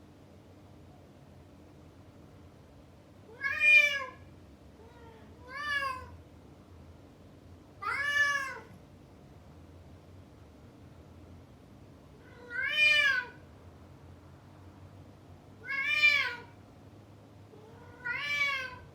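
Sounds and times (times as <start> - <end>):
cat meowing: 3.3 - 6.2, 7.8 - 8.8, 12.2 - 13.4, 15.6 - 16.6, 17.6 - 18.9.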